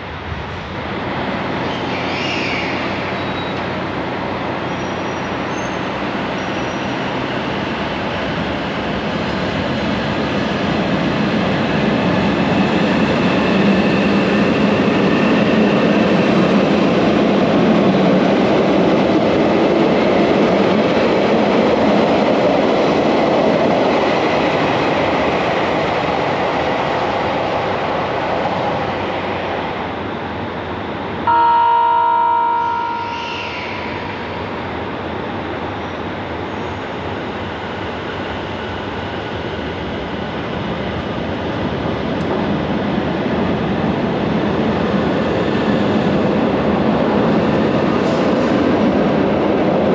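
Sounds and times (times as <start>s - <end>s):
ringing chime: 31.3s - 33.2s.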